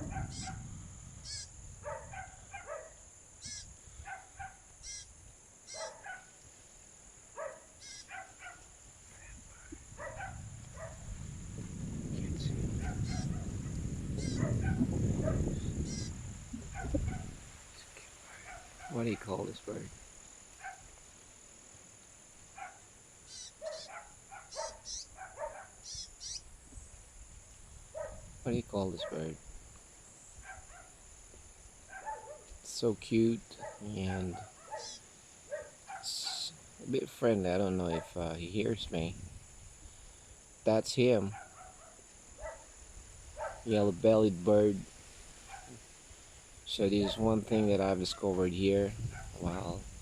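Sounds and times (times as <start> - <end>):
songbird chirping: 0.0 - 11.2, 12.0 - 39.2, 46.7 - 49.8
high insect drone: 0.0 - 50.0
bird calling in clipped notes: 4.8 - 5.1, 7.8 - 8.2, 15.9 - 16.1, 23.3 - 25.1, 25.8 - 26.4, 34.7 - 35.0
thin high chirps: 4.8 - 5.1, 7.8 - 8.1, 15.9 - 16.1, 23.3 - 23.9, 24.5 - 25.1, 25.8 - 26.4.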